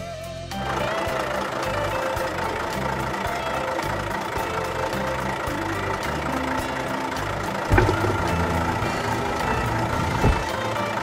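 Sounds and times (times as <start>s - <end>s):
tractor engine idling: 0.0s - 11.0s
dull thumps: 7.7s - 10.6s.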